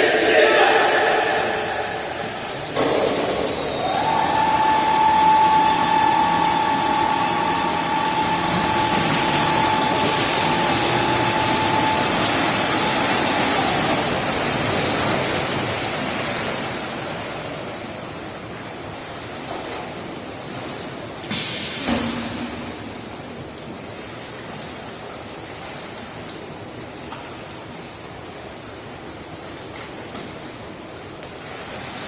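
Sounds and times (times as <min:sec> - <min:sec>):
continuous rushing noise: 0:00.0 - 0:32.0
high-pitched tone: 0:02.8 - 0:13.7.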